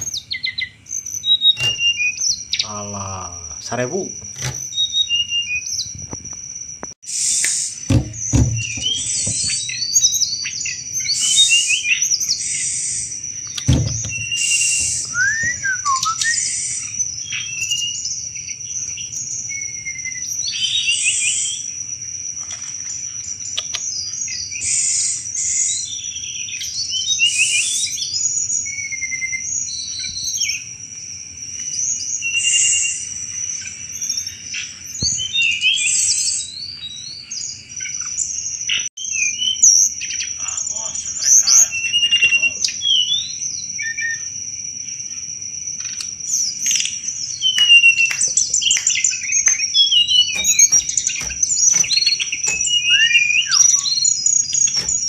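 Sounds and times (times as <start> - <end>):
songbird chattering song: 0.0 - 30.7, 31.5 - 55.0.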